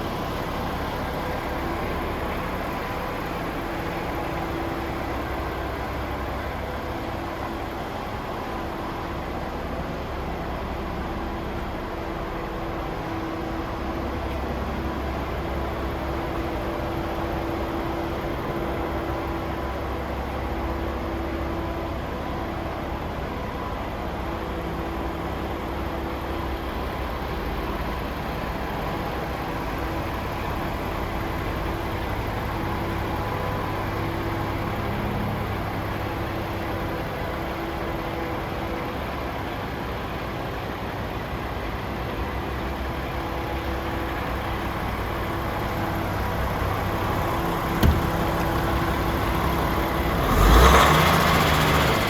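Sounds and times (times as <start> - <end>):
diesel truck engine idling: 0.0 - 52.0
short knock: 47.7 - 48.6.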